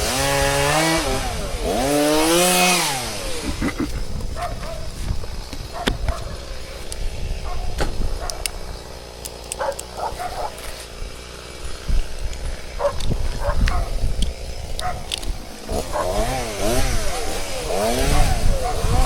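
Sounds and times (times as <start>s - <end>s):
chainsaw idling: 0.0s - 19.0s
dog barking: 4.4s - 4.8s, 5.7s - 6.4s, 7.4s - 8.4s, 9.6s - 10.6s, 12.8s - 13.9s, 14.8s - 15.1s, 15.9s - 16.3s.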